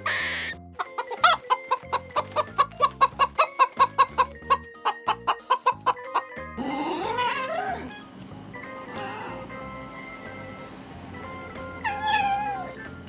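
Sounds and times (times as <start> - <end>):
chicken clucking rapidly: 0.0 - 7.8
background music: 0.0 - 13.0.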